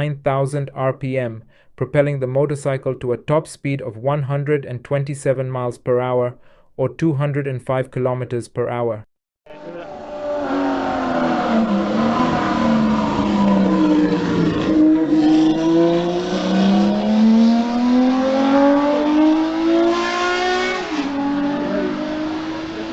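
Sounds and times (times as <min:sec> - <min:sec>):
motorcycle engine accelerating: 0:09.5 - 0:22.9.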